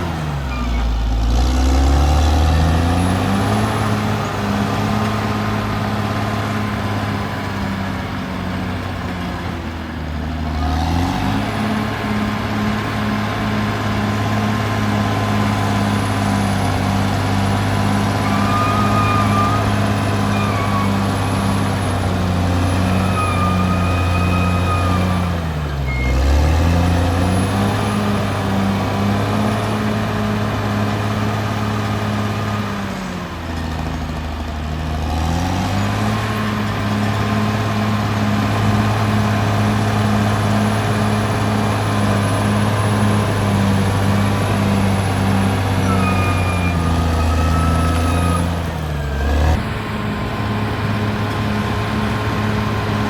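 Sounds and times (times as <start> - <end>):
bulldozer diesel engine under load: 0.0 - 53.0
high squeals: 0.2 - 1.2, 17.6 - 26.8, 44.5 - 49.6.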